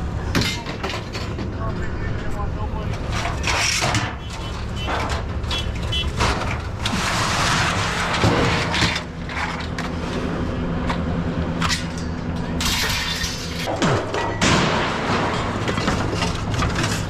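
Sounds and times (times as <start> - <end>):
scraping and rattling: 2.6 - 17.0.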